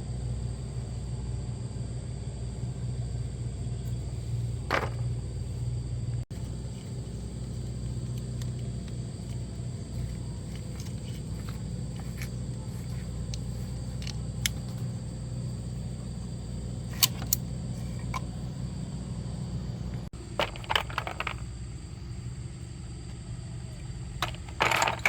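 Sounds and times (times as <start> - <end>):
steady low hum: 0.0 - 25.0
tools and metal parts clicking: 6.4 - 18.4, 20.3 - 21.5, 24.2 - 25.0.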